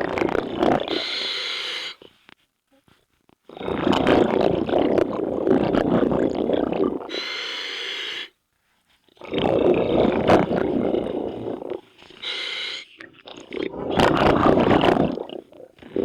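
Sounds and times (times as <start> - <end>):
bubbling exhalation through regulator: 0.0 - 1.4, 3.5 - 7.4, 9.1 - 16.0
hissing inhalation: 0.8 - 2.1, 7.1 - 8.3, 10.8 - 13.1.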